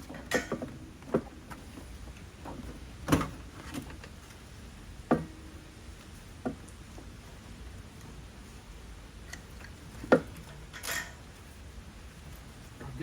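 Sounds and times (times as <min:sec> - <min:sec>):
hand tools knocking and clunking: 0:00.0 - 0:01.3.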